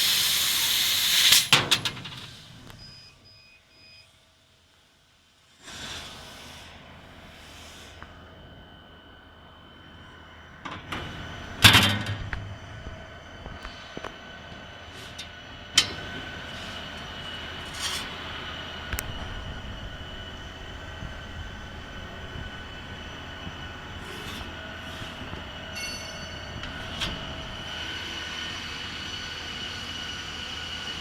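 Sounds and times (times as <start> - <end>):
laser cutter whine and hum: 6.6 - 31.0.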